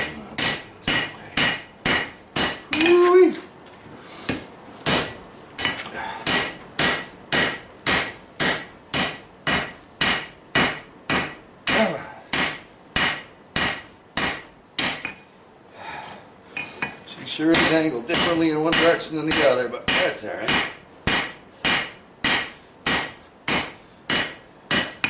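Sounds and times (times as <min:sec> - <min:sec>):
hammer striking steel on anvil: 0:00.0 - 0:03.0, 0:04.9 - 0:15.2, 0:17.5 - 0:25.0.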